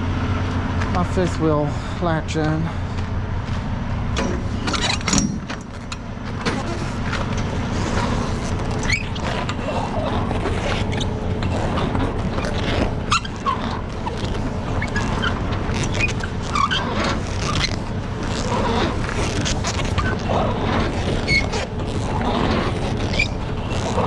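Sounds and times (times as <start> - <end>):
diesel truck engine idling: 0.0 - 22.7
clicks and clanks: 4.1 - 9.6.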